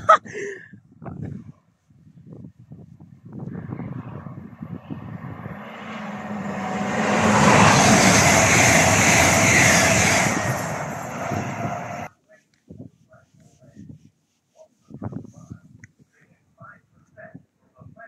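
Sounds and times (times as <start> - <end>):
train passing at speed: 3.4 - 12.1.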